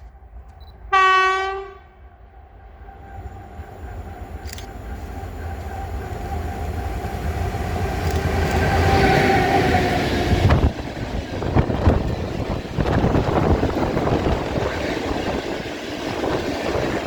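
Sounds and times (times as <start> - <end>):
train rumble and whine: 0.0 - 17.0
train wheels clicking over rail joints: 4.3 - 17.0.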